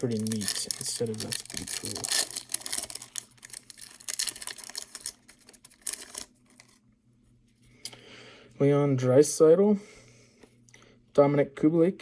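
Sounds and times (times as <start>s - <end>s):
trading cards rustling and clicking: 0.0s - 6.8s.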